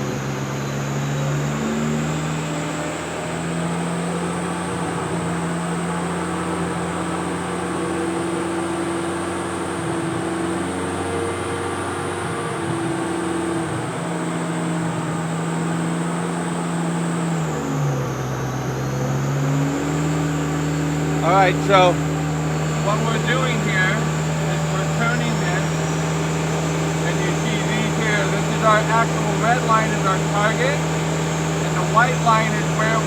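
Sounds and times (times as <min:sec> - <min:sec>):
car engine running under load: 0:00.0 - 0:33.0
thin high whine: 0:00.0 - 0:33.0.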